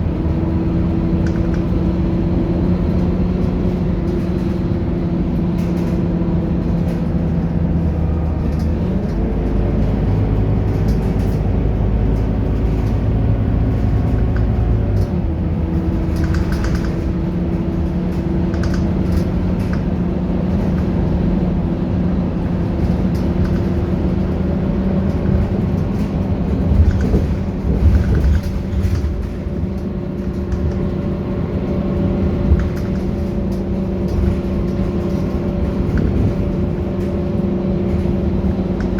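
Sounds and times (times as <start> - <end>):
bus diesel engine running: 0.0 - 38.9
knocks and rattles: 22.5 - 38.9.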